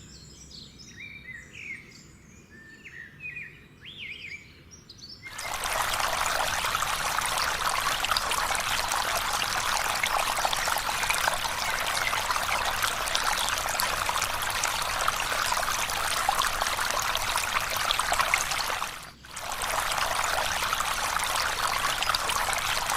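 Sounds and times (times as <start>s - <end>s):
running water: 5.3s - 22.9s.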